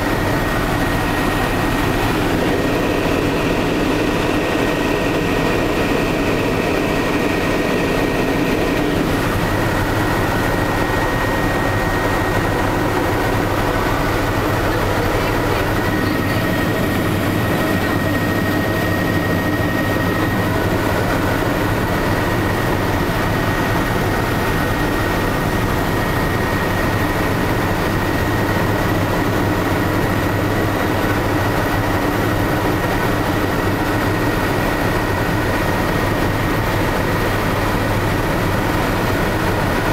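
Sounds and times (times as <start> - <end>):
high whine: 0.0 - 28.0
helicopter turbine and rotor drone: 0.0 - 39.9.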